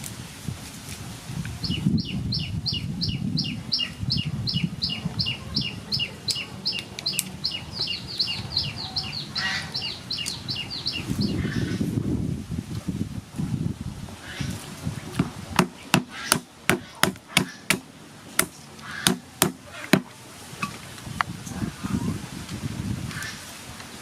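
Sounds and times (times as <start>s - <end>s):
bird chirping: 1.6s - 11.8s.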